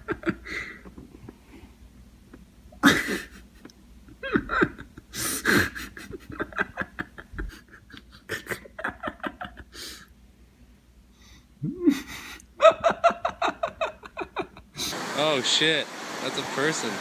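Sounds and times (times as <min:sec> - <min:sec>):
person laughing and panting: 0:00.0 - 0:01.7, 0:02.8 - 0:10.1, 0:11.6 - 0:15.0.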